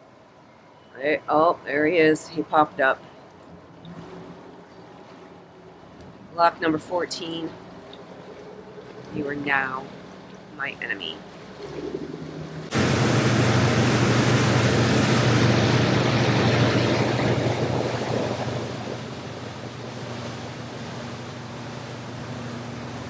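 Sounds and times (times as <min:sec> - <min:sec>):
water noise: 0:00.0 - 0:23.0
boat motor humming: 0:01.3 - 0:23.0
wind rushing over microphone: 0:11.7 - 0:21.1.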